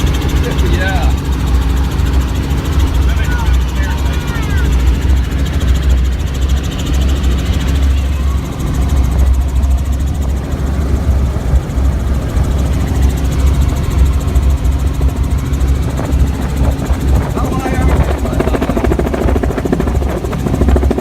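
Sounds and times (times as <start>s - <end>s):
helicopter rotor and engine drone: 0.0s - 21.0s.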